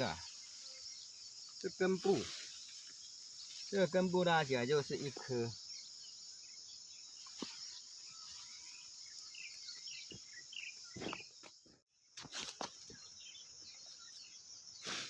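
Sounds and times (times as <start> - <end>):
bird chirps: 0.0 - 15.0
crickets and insects chirring: 0.0 - 15.0
rustles: 1.5 - 5.4, 7.1 - 10.2, 10.9 - 13.2.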